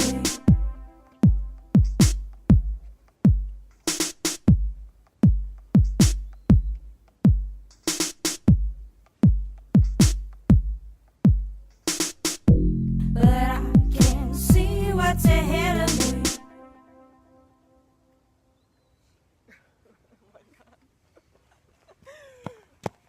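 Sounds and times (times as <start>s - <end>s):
deep kick drums: 0.0s - 3.7s, 4.4s - 7.7s, 8.4s - 11.7s, 12.5s - 15.5s
snare or clap strikes: 1.8s - 2.4s, 5.8s - 6.8s, 9.8s - 10.4s.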